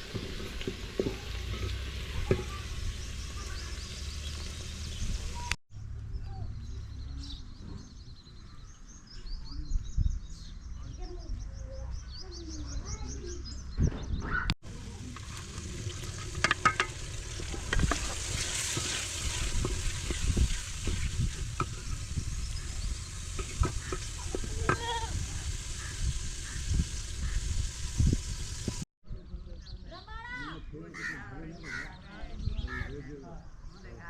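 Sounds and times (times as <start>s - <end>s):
food sizzling in a pan: 0.0s - 5.5s, 14.6s - 28.9s
utensil stirring clicks and scrapes: 15.0s - 24.9s.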